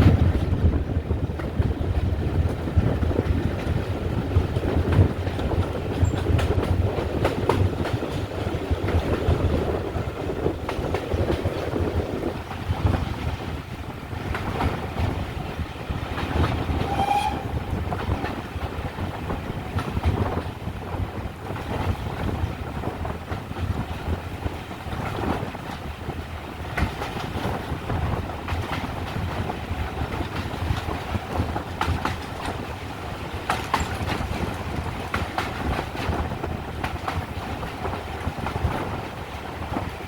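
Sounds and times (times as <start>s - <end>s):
train wheels rumbling on rail: 0.0s - 40.0s
brief pitched tone: 16.9s - 17.7s
clicks over rail joints: 28.4s - 39.1s.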